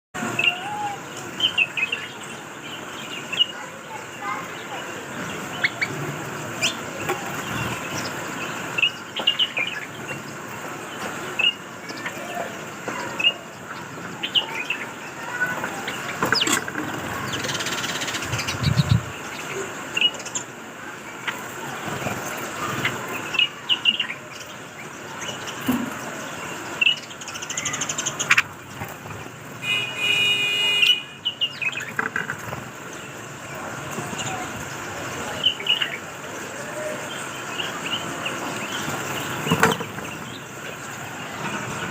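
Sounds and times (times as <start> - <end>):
bulbuls chirping: 0.2 - 41.9
steady background noise: 0.2 - 41.9.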